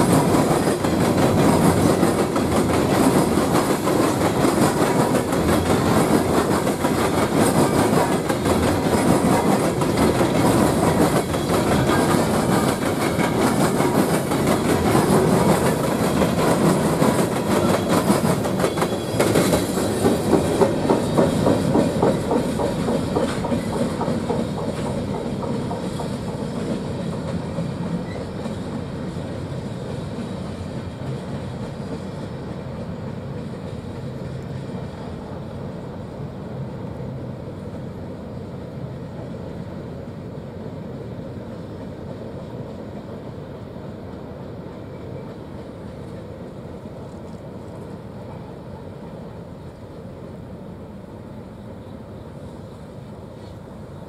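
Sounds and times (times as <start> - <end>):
freight train wheels clicking: 0.0 - 35.1.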